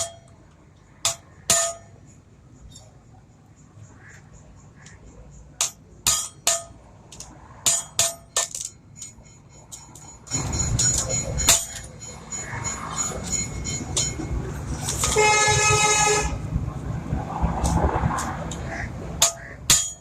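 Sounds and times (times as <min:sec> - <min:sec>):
hammer striking metal: 0:00.0 - 0:00.4, 0:01.0 - 0:02.1, 0:05.6 - 0:15.2, 0:19.2 - 0:20.0.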